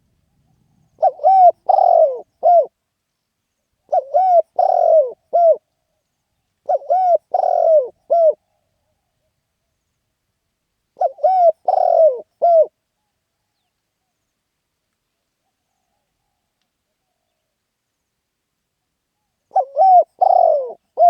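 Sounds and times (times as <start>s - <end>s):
dove cooing: 0.4s - 2.8s, 3.9s - 5.6s, 6.6s - 8.6s, 11.0s - 12.8s, 19.5s - 21.0s.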